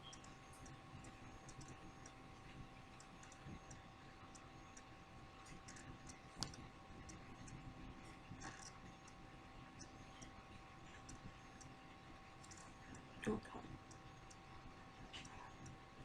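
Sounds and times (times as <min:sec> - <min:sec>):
small clicks: 0:00.0 - 0:07.6, 0:08.3 - 0:09.2, 0:12.4 - 0:13.0
faint steady tone: 0:00.0 - 0:16.0.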